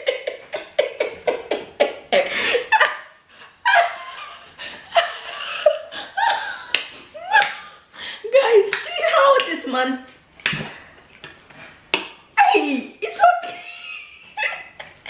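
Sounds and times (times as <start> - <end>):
woman laughing: 0.0 - 7.8, 12.4 - 15.0.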